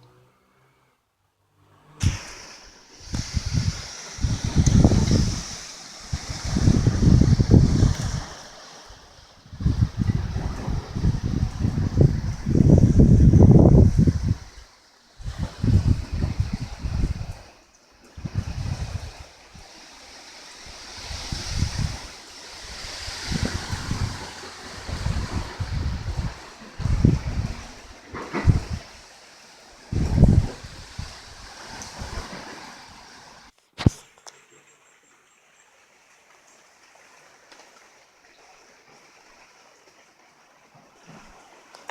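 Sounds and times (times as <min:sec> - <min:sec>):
wind striking microphone: 0:02.0 - 0:08.5, 0:09.4 - 0:14.6, 0:15.2 - 0:17.5, 0:18.2 - 0:19.2, 0:21.0 - 0:28.9, 0:29.9 - 0:32.4
strong wind gusting: 0:02.0 - 0:14.6, 0:15.2 - 0:17.5, 0:18.2 - 0:19.7, 0:20.7 - 0:29.0, 0:29.9 - 0:33.1
wind rushing: 0:02.0 - 0:14.6.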